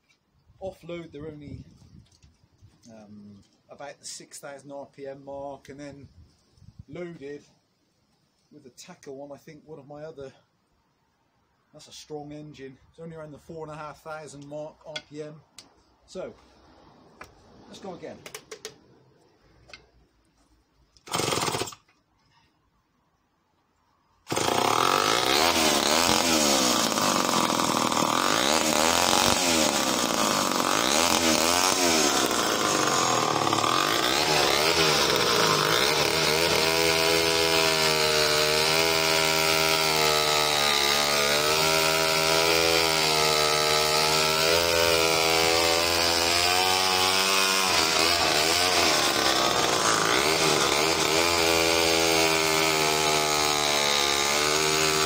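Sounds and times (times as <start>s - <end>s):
chainsaw cutting wood: 21.0s - 22.0s, 24.2s - 55.0s.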